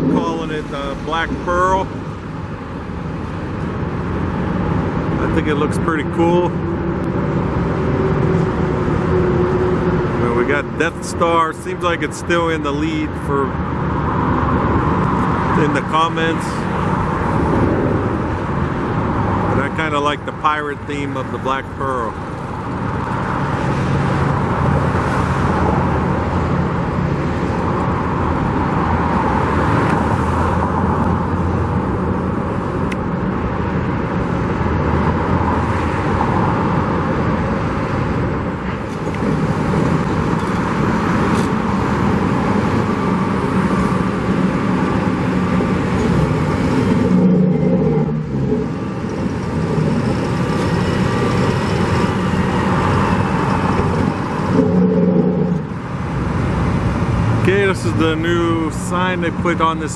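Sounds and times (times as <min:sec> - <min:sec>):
cars passing by: 0:00.0 - 0:59.9
roadway noise: 0:00.0 - 0:59.9.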